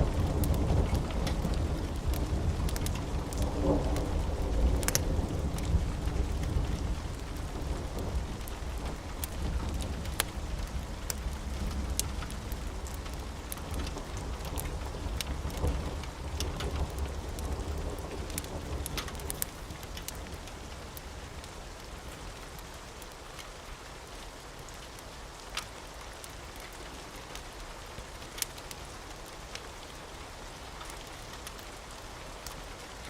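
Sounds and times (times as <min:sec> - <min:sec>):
low rumble of thunder: 0:00.0 - 0:22.0
steady rain: 0:00.0 - 0:33.0
wood fire crackling: 0:00.0 - 0:33.0.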